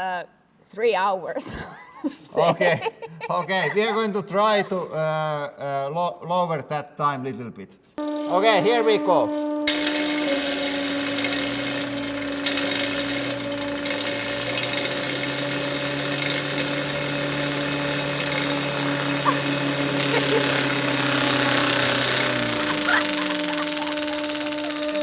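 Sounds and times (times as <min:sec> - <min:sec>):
angle grinder whining: 0:08.0 - 0:25.0.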